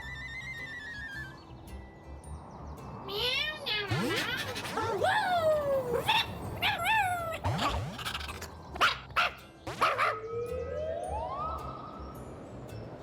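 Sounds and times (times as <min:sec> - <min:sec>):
cartoon character yips and squeaks: 0:03.7 - 0:10.2.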